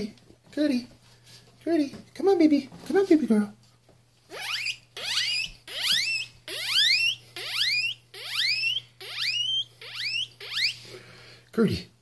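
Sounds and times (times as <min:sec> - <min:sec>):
man imitating guinea pig squeals: 0:04.3 - 0:10.9.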